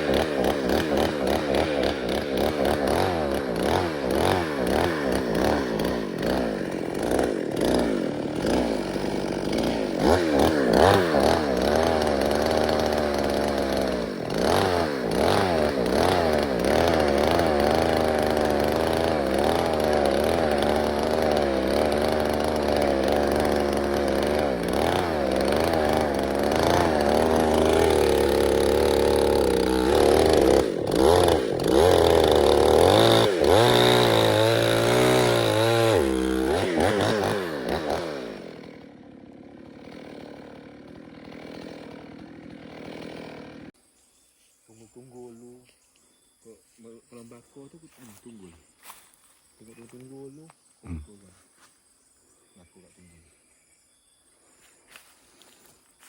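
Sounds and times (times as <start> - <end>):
chainsaw engine revving: 0.0 - 43.8.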